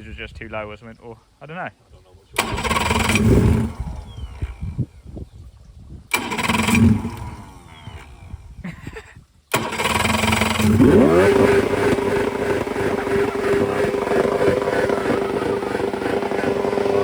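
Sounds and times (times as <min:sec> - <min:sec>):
boat engine cranking on starter: 0:02.4 - 0:04.8, 0:06.1 - 0:08.6, 0:09.5 - 0:17.0.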